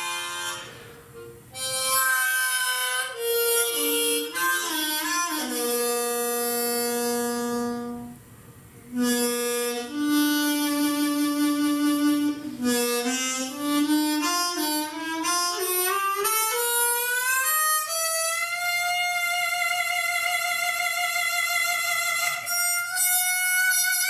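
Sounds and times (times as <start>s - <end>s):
slow improvised instrumental melody: 0.0s - 24.0s.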